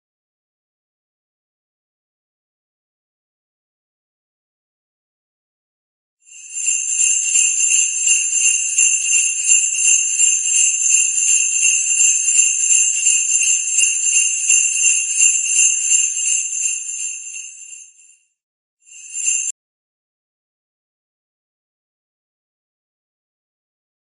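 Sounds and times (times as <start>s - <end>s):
jingle bells shaking: 6.3s - 18.2s, 18.9s - 19.5s.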